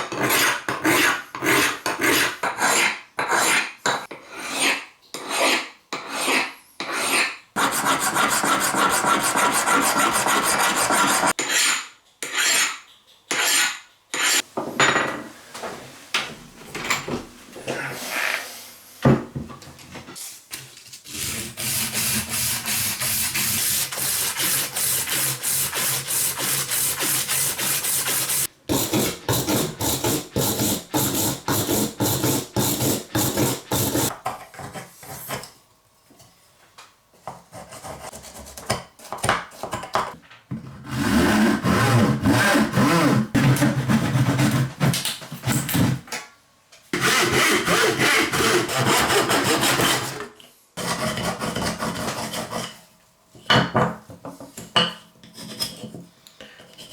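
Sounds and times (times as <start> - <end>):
hand tool rasping wood: 7.0 - 11.4, 21.1 - 34.1, 47.0 - 50.2.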